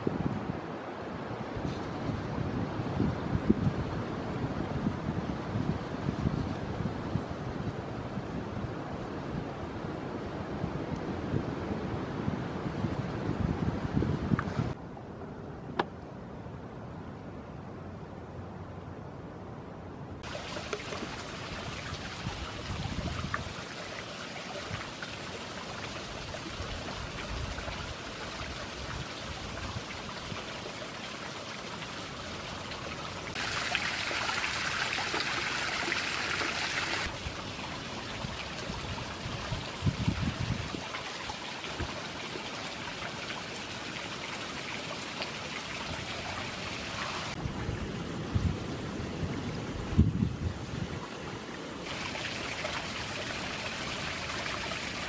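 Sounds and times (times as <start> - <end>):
water splashing over small waterfall: 20.2 - 47.6, 50.7 - 55.0.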